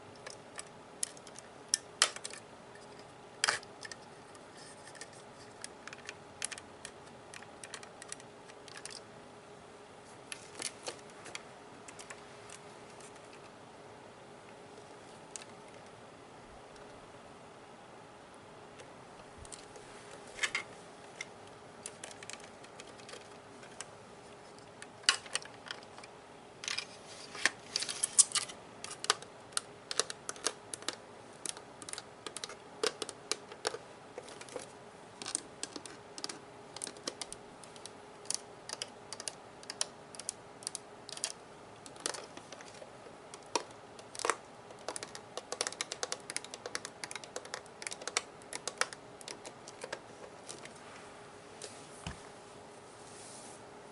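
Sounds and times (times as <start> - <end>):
fingers tapping on hard plastic: 43.4 - 50.0.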